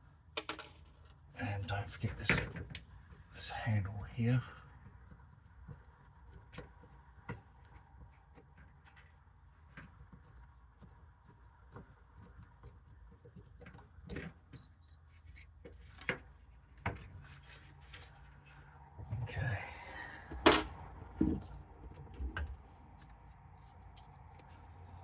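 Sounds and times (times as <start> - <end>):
plastic parts clicking and knocking: 0.4 - 1.2
faint low hum: 17.2 - 25.0.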